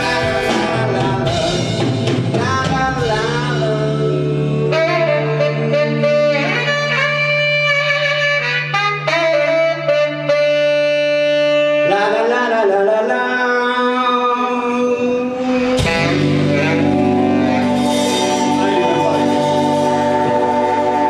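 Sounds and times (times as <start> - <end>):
saxophone long notes: 0.0 - 21.0
sustained low chord: 15.0 - 21.0.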